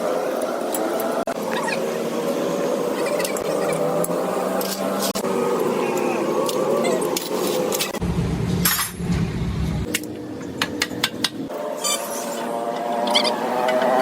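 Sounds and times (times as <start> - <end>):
low rumble: 8.0 - 9.9.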